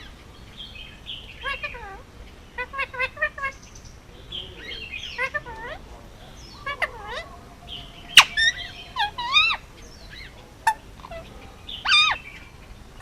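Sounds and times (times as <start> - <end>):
parakeet chirping and whistling: 6.5 - 12.4.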